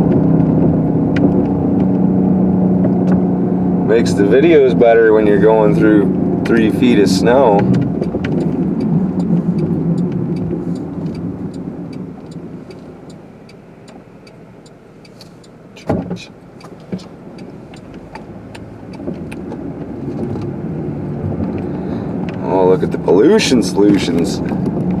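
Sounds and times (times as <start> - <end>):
car engine and tyre noise: 0.0 - 25.0
fast light ticking: 7.7 - 15.6, 16.5 - 19.6.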